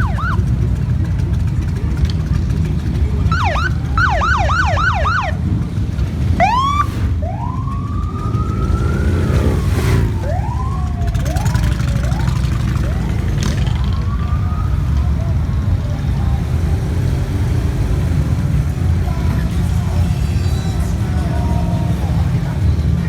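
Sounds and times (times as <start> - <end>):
electronic sirens whooping and chirping: 0.0 - 0.6, 3.2 - 5.6, 6.4 - 15.5
motorcycle engines rumbling: 0.0 - 23.0.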